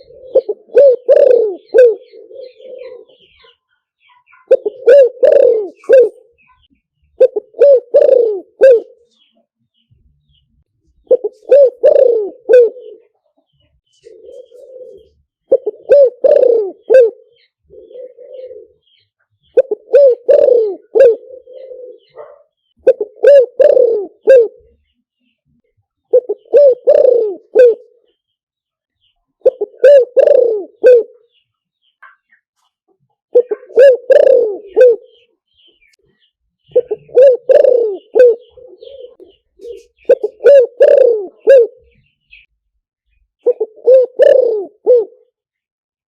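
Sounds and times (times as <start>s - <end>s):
dove cooing: 0.0s - 3.6s, 4.3s - 9.4s, 11.0s - 24.8s, 26.1s - 28.1s, 29.4s - 31.4s, 33.3s - 35.3s, 36.7s - 42.5s, 43.4s - 45.4s
soft rolling bird notes: 0.0s - 22.2s.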